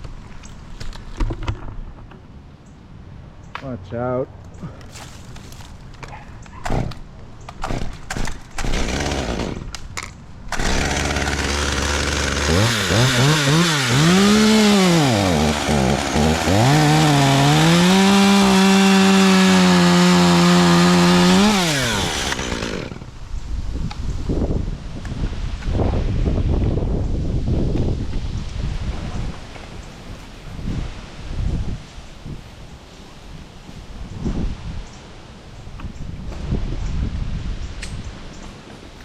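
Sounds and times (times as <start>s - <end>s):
chainsaw idling and revving: 6.7s - 7.0s, 7.6s - 9.8s, 10.5s - 23.2s.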